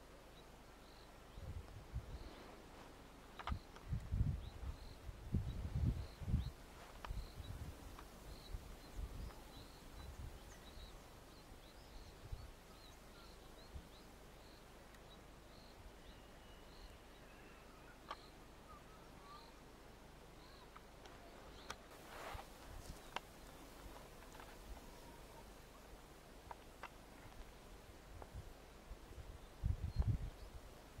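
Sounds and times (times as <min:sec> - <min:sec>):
wind rumble on microphone: 0:01.3 - 0:02.4, 0:03.5 - 0:11.0, 0:28.0 - 0:31.0
bird chirping: 0:03.4 - 0:19.7.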